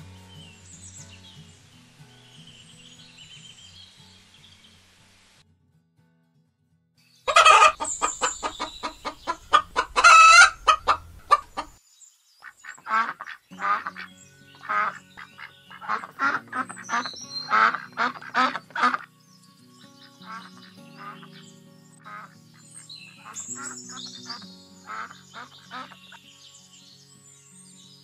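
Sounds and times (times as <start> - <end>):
ducks quacking: 7.3 - 11.8, 12.4 - 19.1, 20.0 - 26.2.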